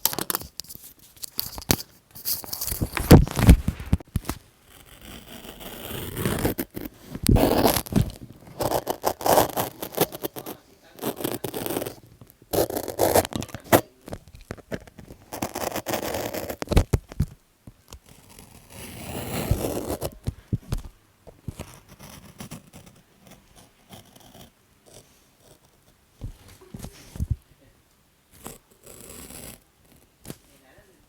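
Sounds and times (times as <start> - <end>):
paper tearing: 0.0 - 13.8, 15.0 - 16.8, 18.0 - 20.2
paper and stickers scratching: 0.0 - 17.3, 17.9 - 27.4.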